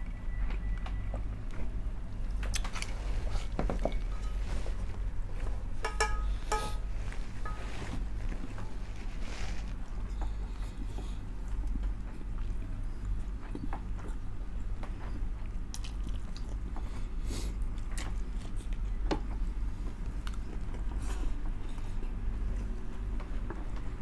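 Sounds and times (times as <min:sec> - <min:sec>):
steady low hum: 0:00.0 - 0:24.0
chewing and mouth smacks: 0:02.4 - 0:03.0, 0:15.4 - 0:19.0, 0:20.0 - 0:21.0.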